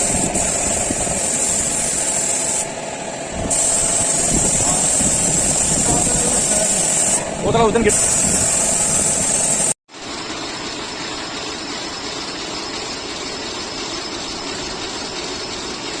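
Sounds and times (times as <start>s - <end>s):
loud hiss: 0.0s - 2.8s, 3.4s - 9.8s
steady mechanical drone: 0.0s - 16.0s.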